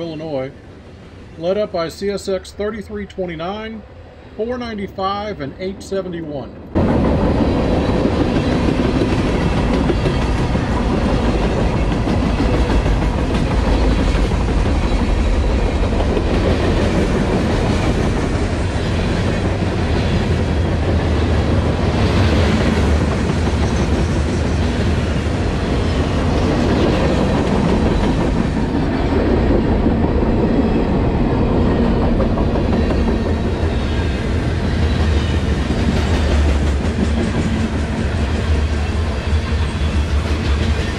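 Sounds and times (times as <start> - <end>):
freight train wheels clattering: 6.8 - 40.9.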